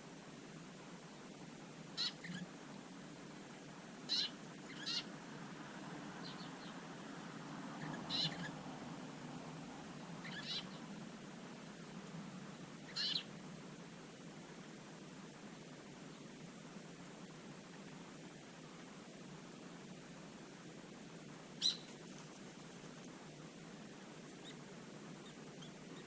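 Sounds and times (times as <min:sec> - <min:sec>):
songbird calls: 0:02.0 - 0:02.5, 0:04.0 - 0:05.2, 0:06.2 - 0:07.1, 0:07.7 - 0:11.0, 0:12.8 - 0:13.4, 0:21.6 - 0:22.6.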